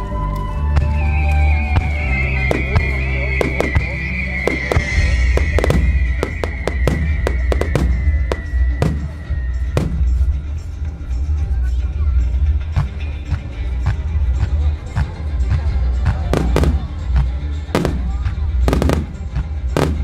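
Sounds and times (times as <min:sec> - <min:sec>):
fireworks bursting with bangs: 0:01.8 - 0:10.4, 0:16.0 - 0:20.0.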